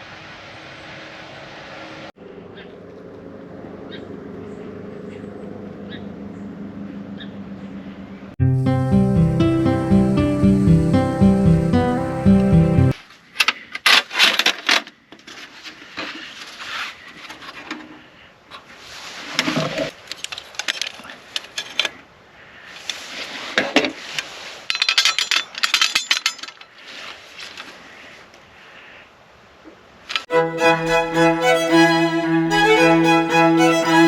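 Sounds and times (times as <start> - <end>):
burst of music: 8.4 - 13.0, 30.3 - 34.0.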